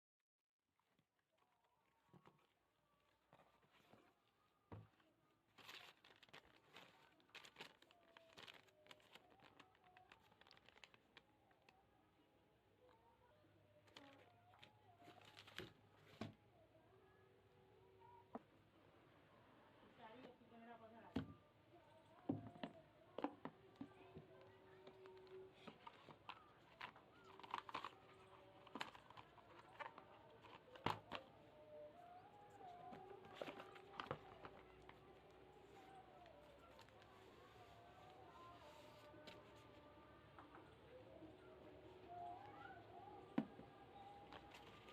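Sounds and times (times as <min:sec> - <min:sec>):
packaging crinkling: 0:05.5 - 0:11.8, 0:13.9 - 0:15.8, 0:25.2 - 0:31.2.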